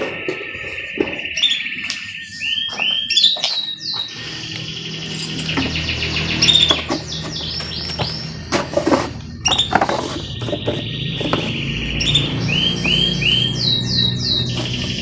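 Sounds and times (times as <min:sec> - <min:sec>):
canary singing trills: 0:00.0 - 0:15.0.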